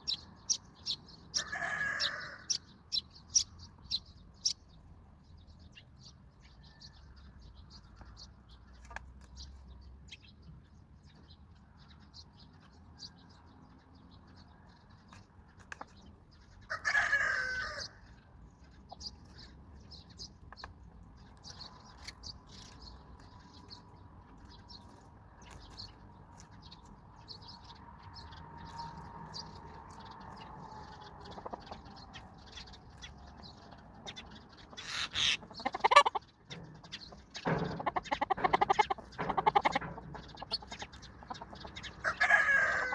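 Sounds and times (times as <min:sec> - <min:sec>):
chickens calling: 0:00.0 - 0:04.6, 0:15.0 - 0:42.9
small birds chirping: 0:00.0 - 0:42.9.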